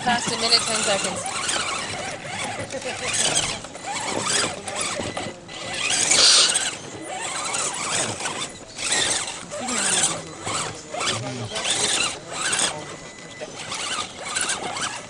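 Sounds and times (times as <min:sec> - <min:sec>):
toy truck motor whining: 0:00.0 - 0:15.0.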